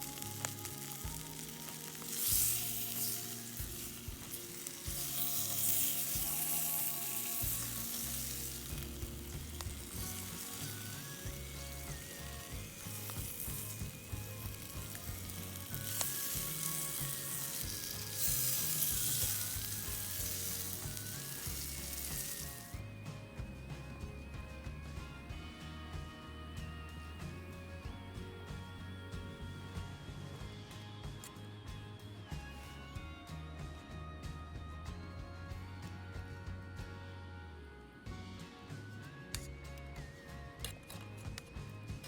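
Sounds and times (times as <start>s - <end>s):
food sizzling in a pan: 0.0s - 22.8s
soft background music: 0.0s - 42.0s.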